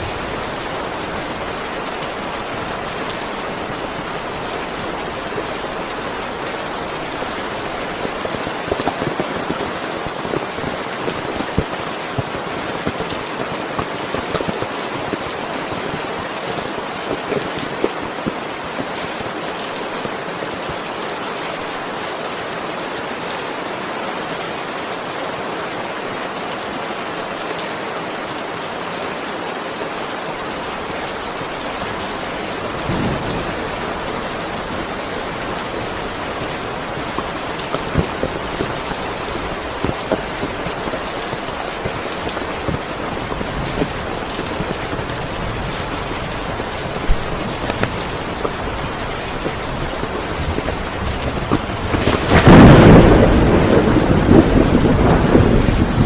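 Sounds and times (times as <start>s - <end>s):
raindrops tapping a surface: 0.0s - 21.0s, 30.4s - 56.0s
heavy rain hiss: 0.0s - 56.0s
thunder rumbling: 30.5s - 56.0s.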